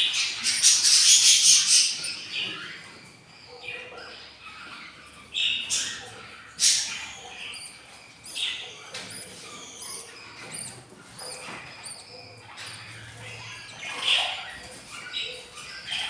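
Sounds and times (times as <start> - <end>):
budgies chirping: 0.0 - 16.0
budgie squawks: 3.6 - 16.0.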